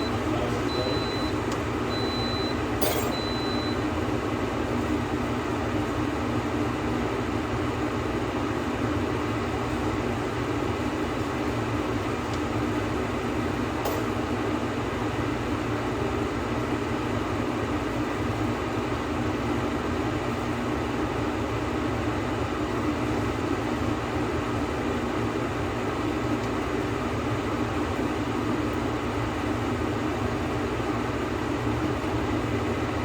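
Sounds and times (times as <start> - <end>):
short high-pitched beeps: 0.7 - 3.8.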